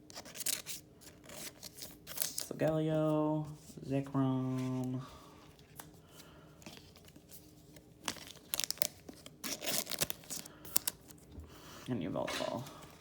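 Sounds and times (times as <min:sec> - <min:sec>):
plastic sleeves crinkling: 0:00.1 - 0:11.3.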